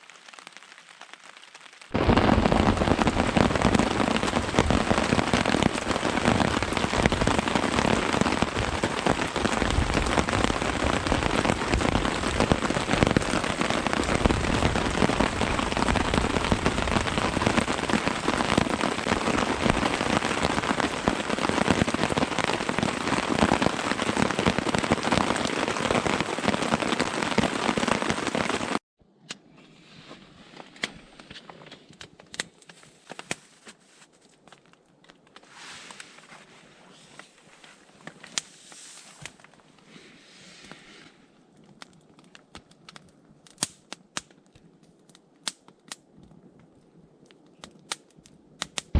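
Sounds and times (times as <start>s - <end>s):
heavy rain falling: 0.0s - 28.8s.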